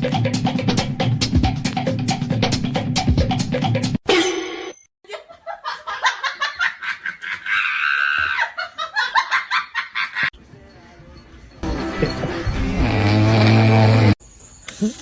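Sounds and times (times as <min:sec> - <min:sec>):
person laughing hard: 0:05.1 - 0:10.3, 0:11.7 - 0:12.8.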